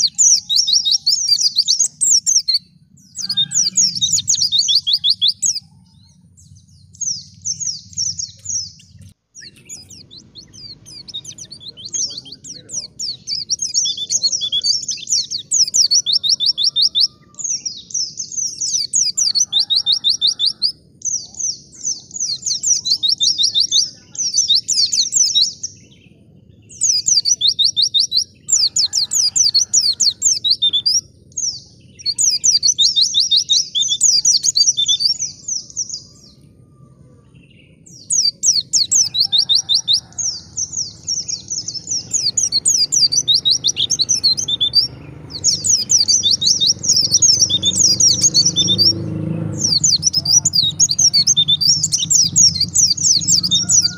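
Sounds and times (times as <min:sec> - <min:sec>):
low rumbling background noise: 0:00.0 - 0:15.9
bird singing high trills: 0:00.0 - 0:53.9.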